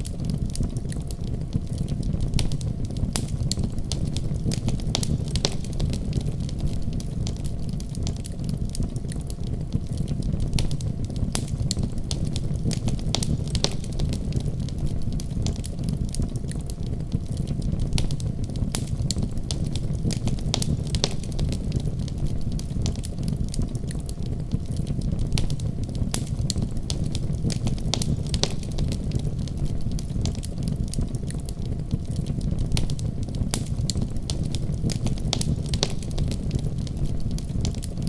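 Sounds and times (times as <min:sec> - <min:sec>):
burning logs crackling and popping: 0:00.0 - 0:38.0
low rumble of flame: 0:00.0 - 0:38.0.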